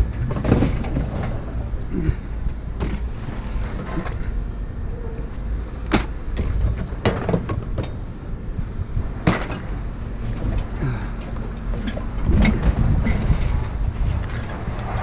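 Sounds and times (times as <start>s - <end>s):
steady low rumble: 0.0s - 15.0s
sharp knocks and clanks: 5.9s - 8.0s.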